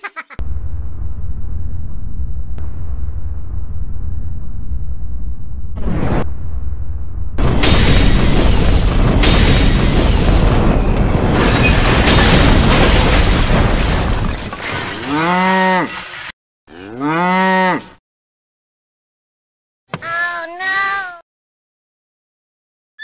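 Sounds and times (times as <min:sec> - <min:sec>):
explosion sound effect: 0:00.4 - 0:14.4
cow mooing: 0:15.1 - 0:16.0, 0:16.7 - 0:18.0.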